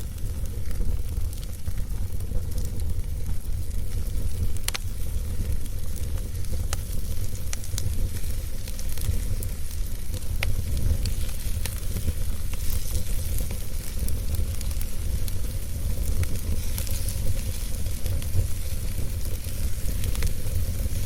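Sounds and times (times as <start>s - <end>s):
fire rumble and hiss: 0.0s - 21.0s
wood fire crackling: 0.0s - 21.0s.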